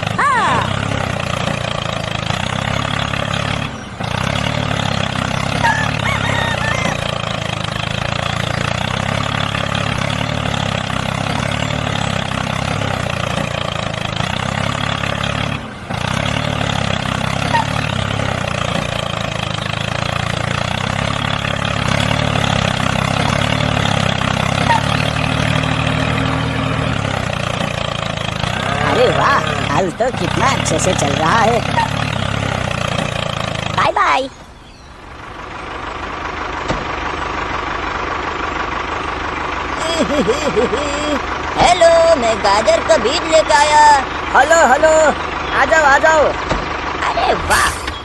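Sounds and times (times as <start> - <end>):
tractor engine running: 0.0 - 48.0
faint bird chirps: 34.2 - 35.2, 47.5 - 48.0.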